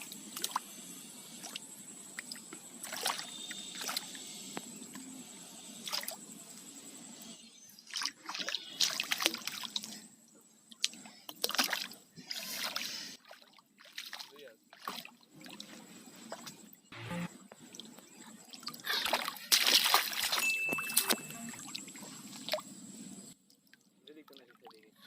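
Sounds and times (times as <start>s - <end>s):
water splashing and sloshing: 0.0s - 7.0s, 7.8s - 25.0s
thin high tone: 16.9s - 17.4s, 20.2s - 22.3s.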